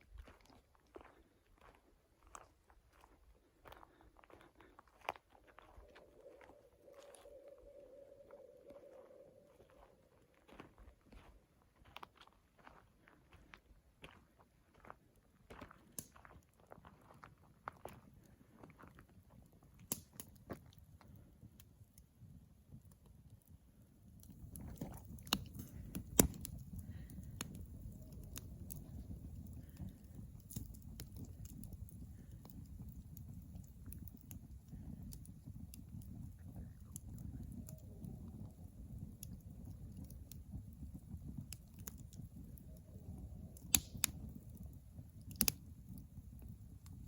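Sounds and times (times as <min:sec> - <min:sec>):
campfire crackling and popping: 0:04.4 - 0:12.2, 0:15.8 - 0:16.8, 0:19.0 - 0:47.0.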